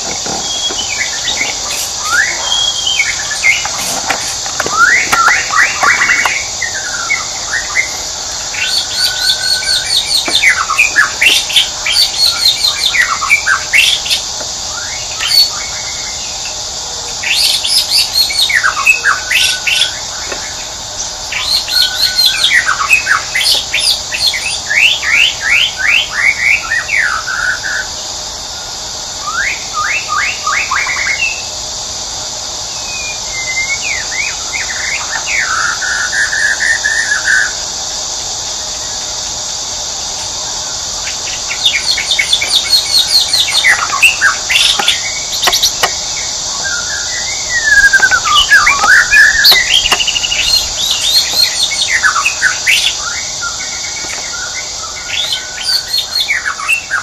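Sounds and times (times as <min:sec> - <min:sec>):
songbirds singing: 0:00.0 - 0:31.8, 0:32.5 - 0:57.0
steady high hiss: 0:00.0 - 0:57.0.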